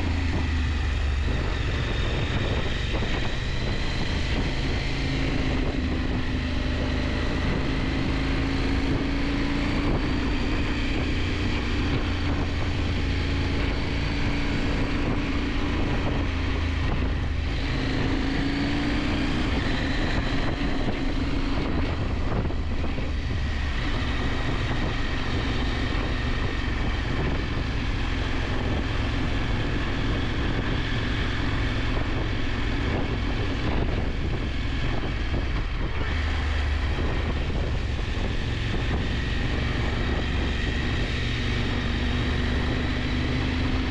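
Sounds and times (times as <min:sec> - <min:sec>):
motorcycle engine running: 0:00.0 - 0:43.9
wind rush on microphone: 0:00.0 - 0:43.9.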